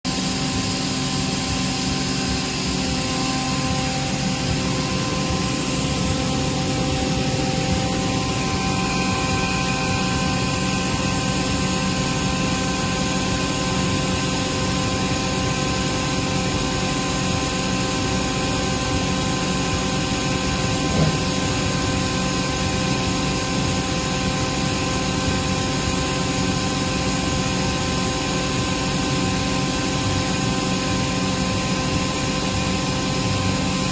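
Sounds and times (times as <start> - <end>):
air compressor humming: 0.1 - 33.9
brief knock: 20.8 - 21.3.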